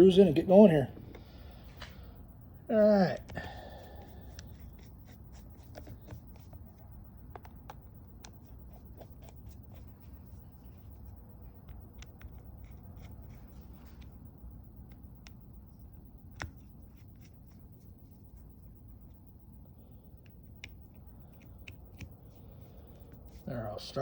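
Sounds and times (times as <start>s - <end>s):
low background hum: 0.0s - 24.0s
small screws clicking: 11.6s - 14.2s.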